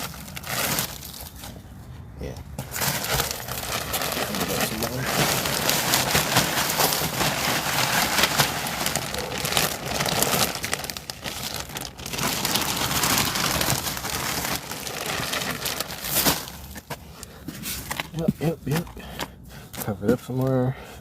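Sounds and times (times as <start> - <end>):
mulch rustling in plastic tote: 0.0 - 1.6, 2.6 - 17.0.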